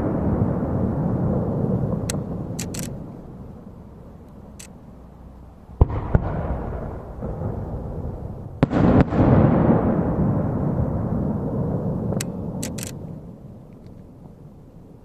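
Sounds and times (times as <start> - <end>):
rolling echo rumble: 0.0 - 15.0
firework shells bursting: 1.9 - 3.2, 12.1 - 13.1.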